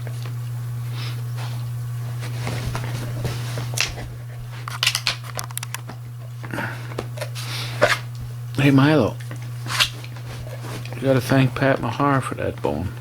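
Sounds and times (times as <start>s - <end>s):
dog gnawing on a bone: 2.2s - 12.3s.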